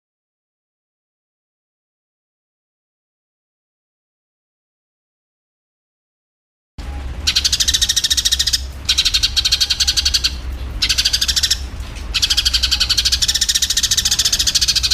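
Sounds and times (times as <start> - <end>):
low steady hum: 6.8 - 14.9
sparrows chattering calls: 7.0 - 14.9.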